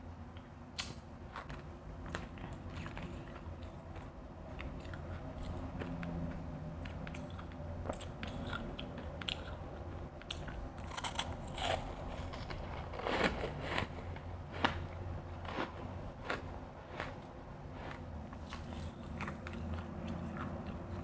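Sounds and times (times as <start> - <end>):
steady low hum: 0.0 - 21.0
ice being chewed crunching: 10.2 - 21.0.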